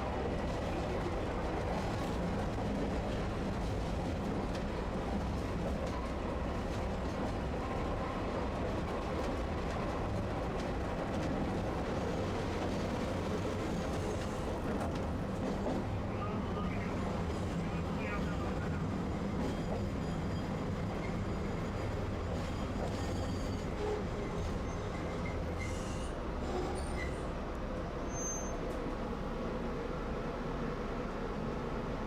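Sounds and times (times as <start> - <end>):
streetcar motors and wheels on rail: 0.0 - 32.0.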